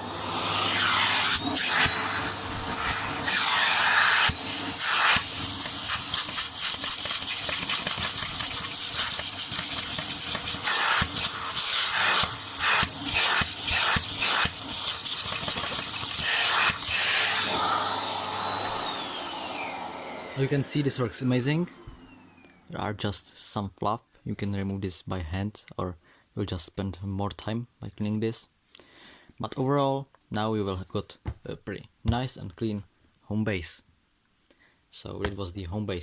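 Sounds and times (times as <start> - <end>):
vacuum cleaner running: 0.0 - 22.8.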